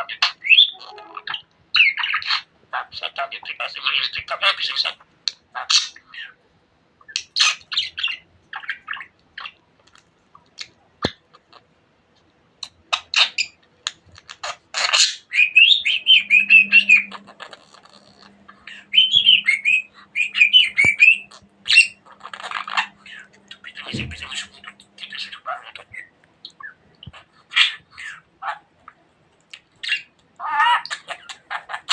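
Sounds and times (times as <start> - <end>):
budgerigar chattering: 12.6 - 28.7, 29.6 - 31.9.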